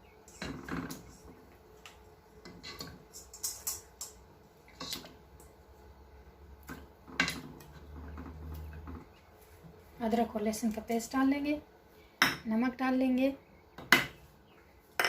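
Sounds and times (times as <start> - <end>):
metal cookware clinking: 2.4 - 4.2.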